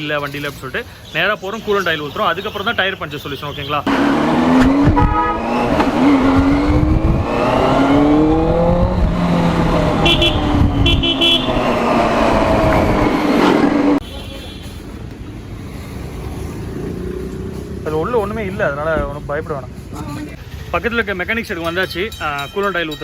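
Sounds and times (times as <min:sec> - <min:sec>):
motorcycle engine revving: 0:03.9 - 0:14.0.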